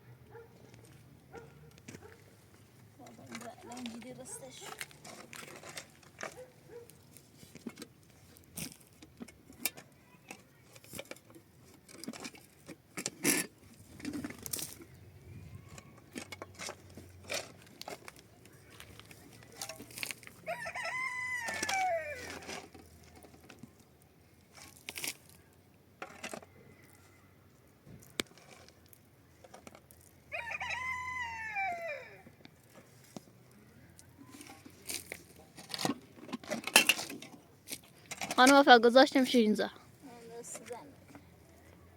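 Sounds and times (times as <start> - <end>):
rooster crowing: 20.4 - 22.3, 30.3 - 32.3.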